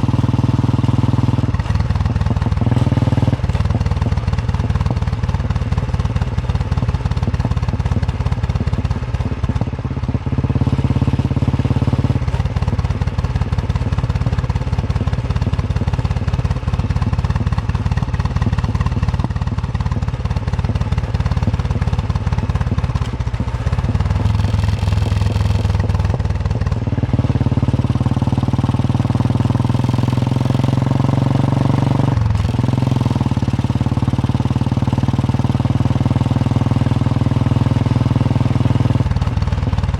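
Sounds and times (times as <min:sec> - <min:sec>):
motorcycle engine thumping: 0:00.0 - 0:28.3.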